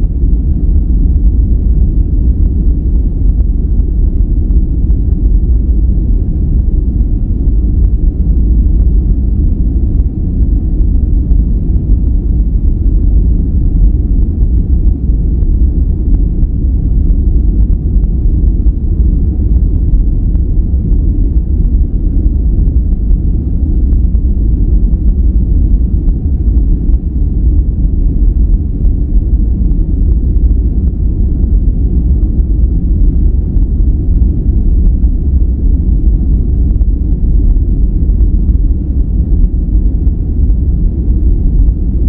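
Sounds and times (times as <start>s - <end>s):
deep muffled rumbling noise: 0.0s - 42.0s.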